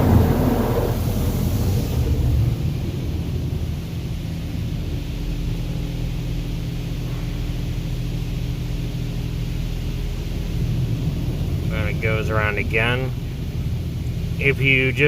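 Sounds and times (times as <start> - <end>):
car wash machinery humming: 0.0 - 15.0.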